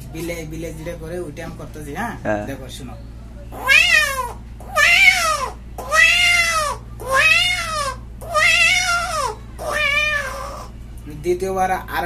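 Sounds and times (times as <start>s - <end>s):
man imitating cat meows: 3.6s - 10.7s.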